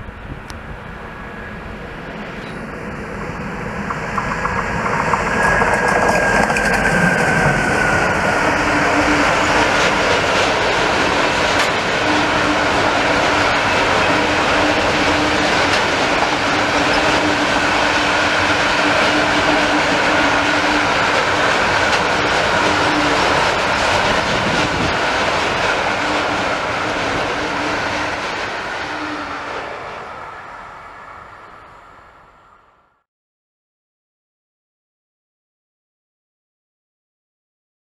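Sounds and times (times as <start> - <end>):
train wheels rumbling on rail: 0.0 - 32.6
steady whine: 0.0 - 33.0.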